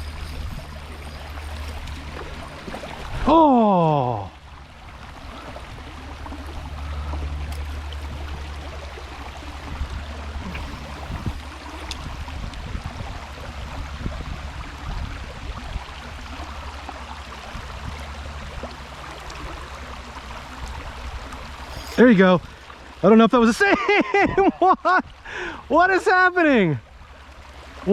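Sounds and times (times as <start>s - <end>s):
river water rushing: 0.0s - 23.4s
low rumble: 4.0s - 22.7s.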